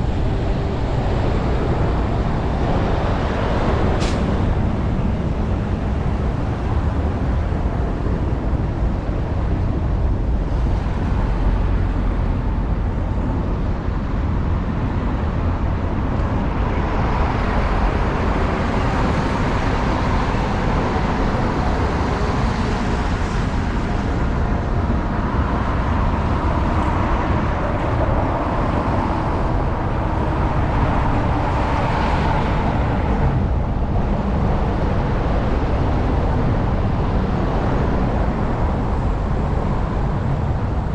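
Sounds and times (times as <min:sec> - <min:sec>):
road traffic: 0:00.0 - 0:40.9
vehicles passing: 0:00.0 - 0:40.9
wind rumble on microphone: 0:00.0 - 0:40.9.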